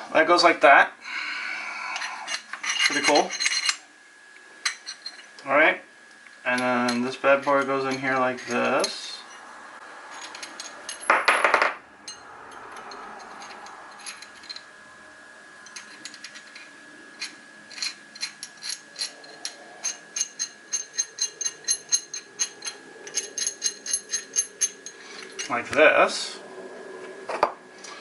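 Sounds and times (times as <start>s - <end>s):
metal scrape: 2.0s - 3.8s.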